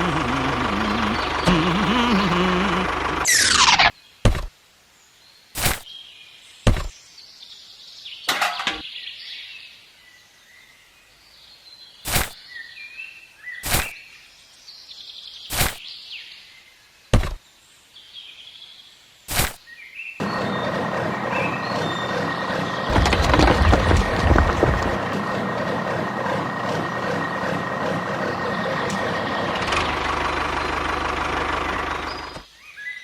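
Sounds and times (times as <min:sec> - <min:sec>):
faint bird chirps: 0:00.0 - 0:03.9.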